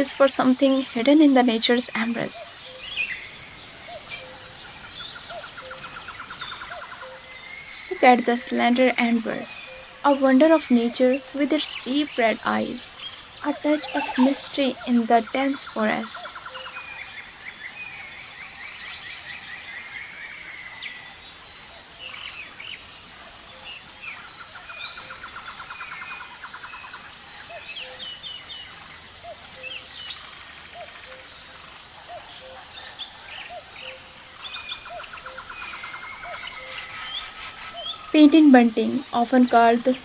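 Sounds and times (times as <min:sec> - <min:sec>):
bird trill: 0:00.0 - 0:18.1, 0:26.8 - 0:40.0
birds chirping: 0:00.0 - 0:40.0
high insect whine: 0:00.0 - 0:40.0.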